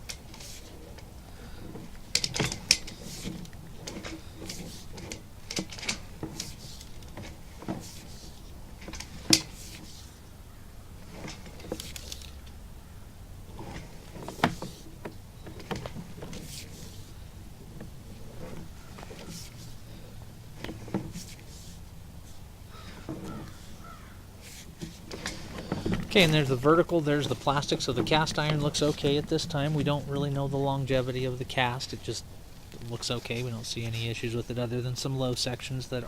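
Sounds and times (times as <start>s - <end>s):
push cable clicking and knocking: 0.0s - 10.0s
steady low hum: 0.0s - 36.0s.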